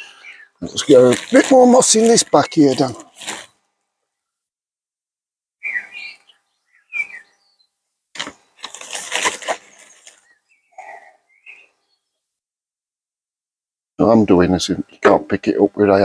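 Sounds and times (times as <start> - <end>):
bird chirps: 0.0 - 0.8, 5.6 - 8.6, 9.6 - 12.4
crackling rustle of moss: 0.6 - 3.7, 8.1 - 10.4.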